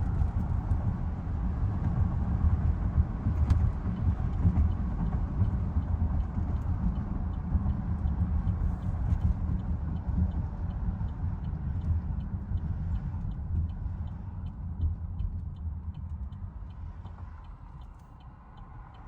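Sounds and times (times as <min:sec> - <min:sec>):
engine exhaust rumble: 0:00.0 - 0:19.0
light regular ticking: 0:04.0 - 0:19.0.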